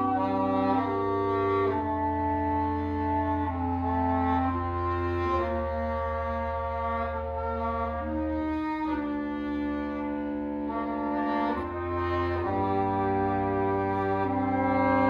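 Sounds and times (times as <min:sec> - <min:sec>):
wind quintet playing chords: 0:00.0 - 0:15.0.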